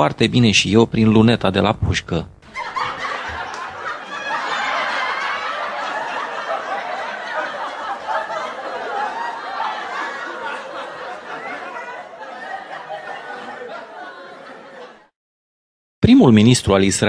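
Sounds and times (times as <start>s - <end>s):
canned laughter: 2.5s - 15.1s.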